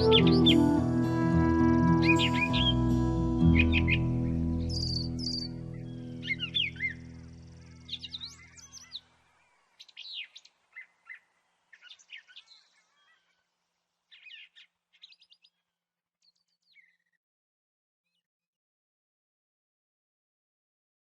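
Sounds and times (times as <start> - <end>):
songbirds chirping and singing: 0.0 - 13.4, 14.1 - 15.6.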